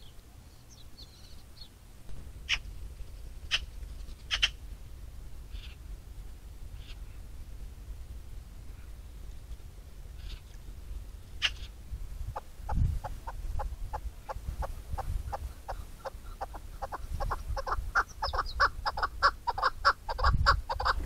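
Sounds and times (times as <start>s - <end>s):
bird clucking calls: 2.4s - 4.7s, 5.5s - 5.8s, 6.8s - 7.2s, 10.1s - 10.6s, 11.4s - 21.0s.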